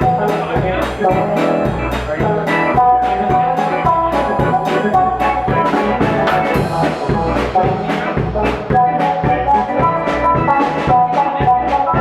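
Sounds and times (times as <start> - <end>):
bass guitar: 0.0 - 12.0
drum kit: 0.0 - 12.0
lead electric guitar: 0.0 - 12.0.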